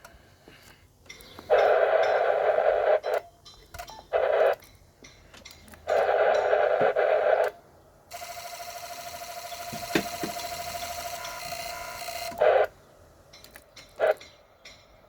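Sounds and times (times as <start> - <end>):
radio static hiss: 1.4 - 3.3, 4.0 - 4.7, 5.9 - 7.8, 11.5 - 12.8, 14.0 - 14.2.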